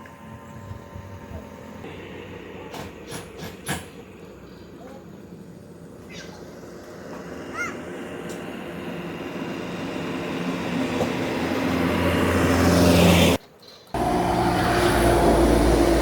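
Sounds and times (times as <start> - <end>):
vehicle engine running: 14.0 - 16.0.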